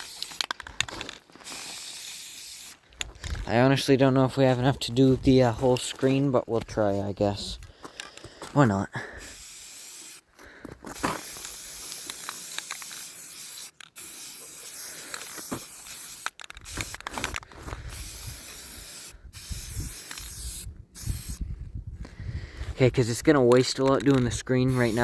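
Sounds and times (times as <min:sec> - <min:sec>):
spray paint can hissing: 0:00.0 - 0:02.8, 0:09.2 - 0:10.3, 0:11.0 - 0:21.4, 0:24.6 - 0:25.0.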